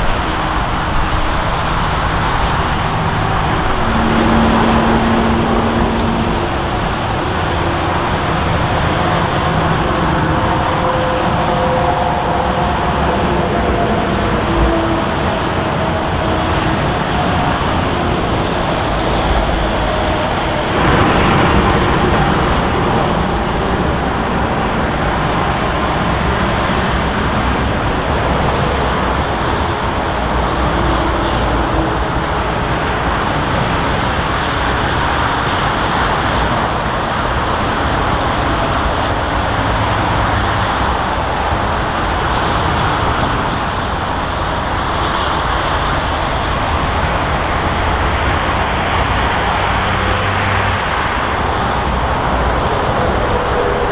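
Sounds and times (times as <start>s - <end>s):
jet engine roar: 0.0s - 12.7s, 19.8s - 25.6s.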